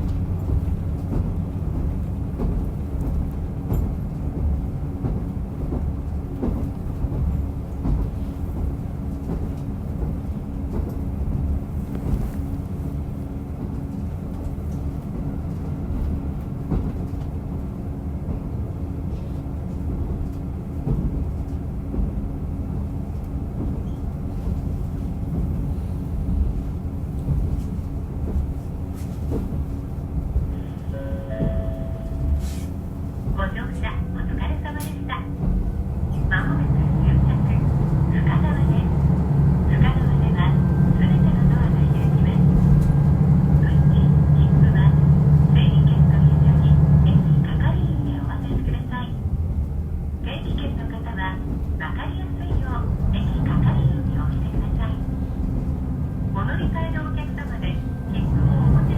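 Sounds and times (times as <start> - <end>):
diesel railcar engine drone: 0.0 - 58.9.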